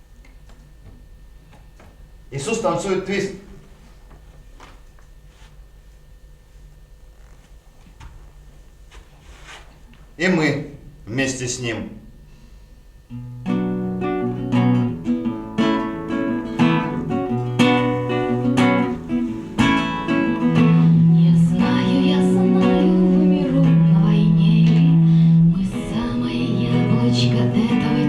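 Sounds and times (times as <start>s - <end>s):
acoustic guitar strumming: 13.1s - 28.0s
long held low notes: 16.4s - 28.0s.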